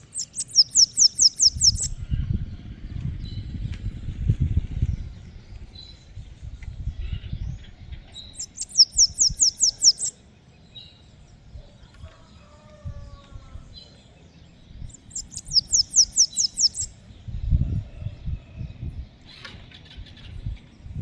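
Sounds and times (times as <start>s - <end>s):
bird singing high-pitched notes: 0.0s - 2.0s, 8.2s - 10.2s, 14.8s - 16.9s.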